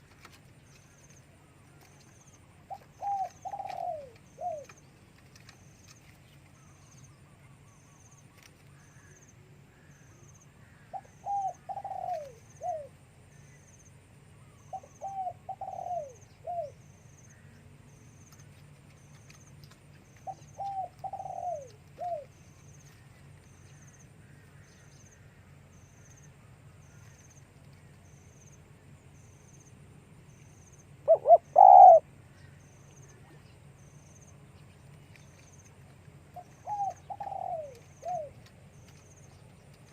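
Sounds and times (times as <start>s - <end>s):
dove cooing: 2.6s - 4.8s, 10.9s - 13.0s, 14.7s - 16.8s, 20.2s - 22.5s, 31.0s - 32.2s, 36.3s - 39.0s.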